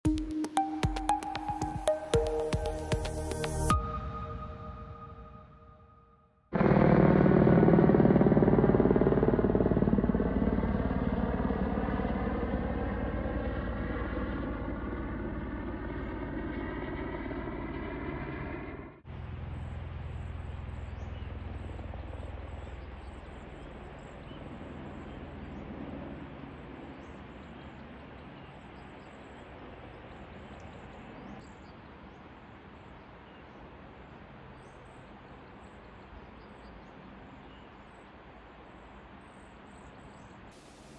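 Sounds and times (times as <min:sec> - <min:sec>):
helicopter rotor flutter: 0:06.5 - 0:28.8
distant helicopter drone: 0:06.5 - 0:40.9.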